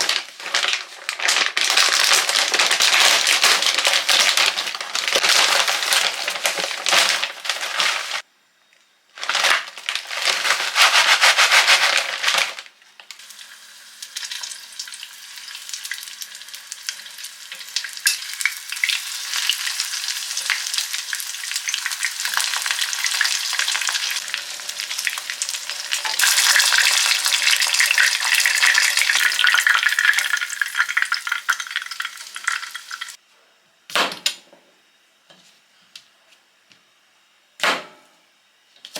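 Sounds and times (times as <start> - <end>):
food sizzling in a pan: 13.2 - 33.2.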